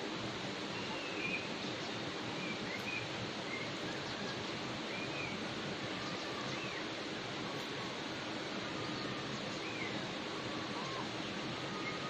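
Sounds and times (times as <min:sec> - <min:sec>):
steady outdoor hiss: 0:00.0 - 0:12.0
faint bird chirps: 0:08.7 - 0:12.0.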